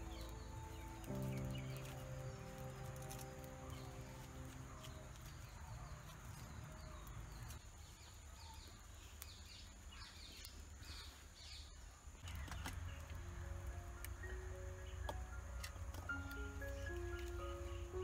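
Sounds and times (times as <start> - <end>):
background music: 0.0 - 5.4, 12.6 - 18.0
birds chirping: 0.0 - 18.0.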